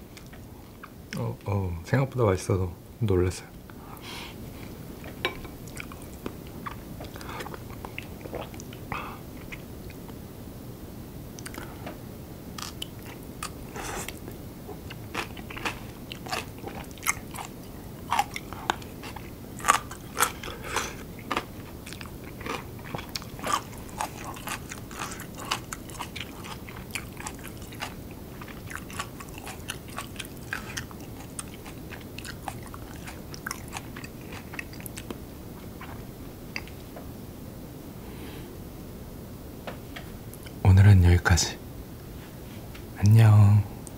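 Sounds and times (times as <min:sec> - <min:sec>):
chewing and wet mouth clicks: 0:11.4 - 0:11.7, 0:21.3 - 0:35.2.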